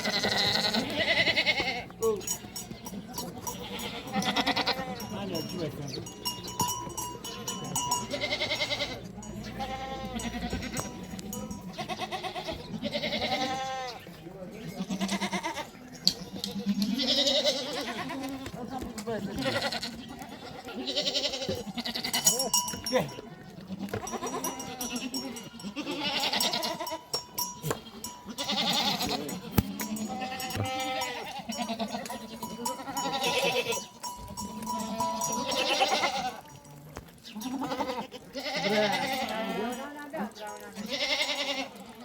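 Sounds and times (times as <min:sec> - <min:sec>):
livestock bleating: 0:00.0 - 0:02.2, 0:03.4 - 0:05.5, 0:08.0 - 0:14.0, 0:14.6 - 0:18.7, 0:19.3 - 0:22.6, 0:23.6 - 0:36.6, 0:37.2 - 0:42.0.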